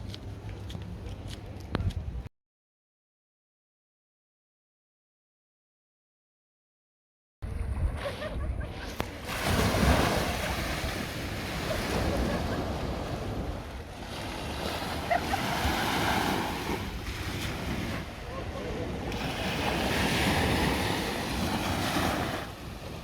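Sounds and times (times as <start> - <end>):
wind rumbling on microphone: 0.0 - 2.3, 7.4 - 23.0
sea waves washing ashore: 7.5 - 23.0.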